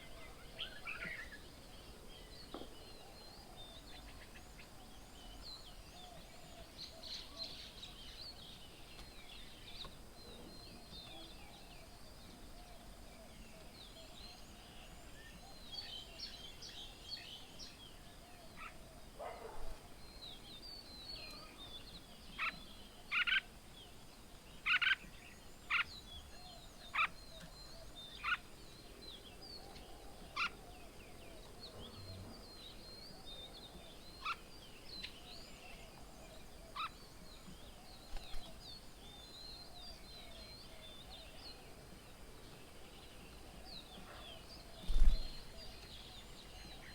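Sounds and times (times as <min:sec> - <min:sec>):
birds chirping: 0:18.6 - 0:22.8.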